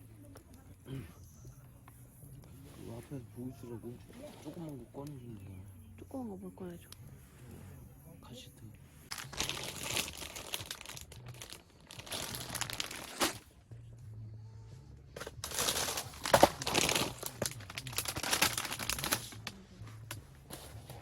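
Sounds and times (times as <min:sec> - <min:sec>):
crinkling and rustling: 0:09.1 - 0:13.5, 0:15.2 - 0:21.0.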